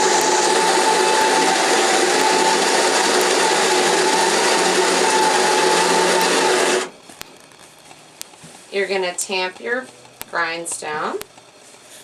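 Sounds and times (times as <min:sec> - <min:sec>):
electric coffee grinder whining: 0:00.0 - 0:07.0.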